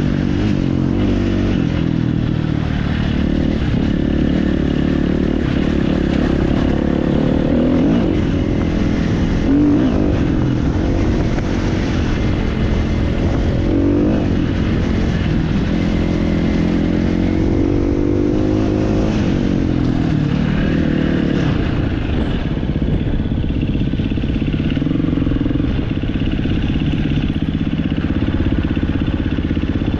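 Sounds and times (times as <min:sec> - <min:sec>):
motorcycle engine revving: 0:00.0 - 0:29.9.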